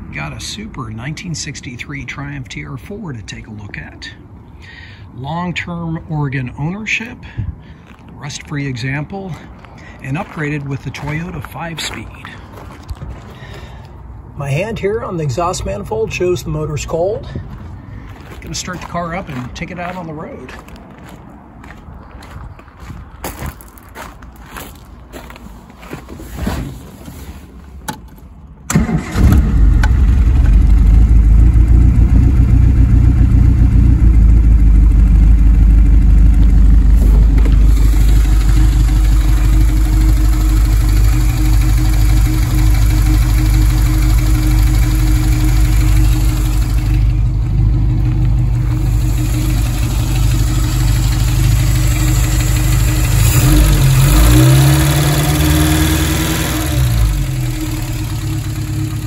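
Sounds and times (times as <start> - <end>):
engine starter cranking: 28.7 - 30.6
car engine idling: 28.7 - 59.0
engine revving: 28.7 - 59.0.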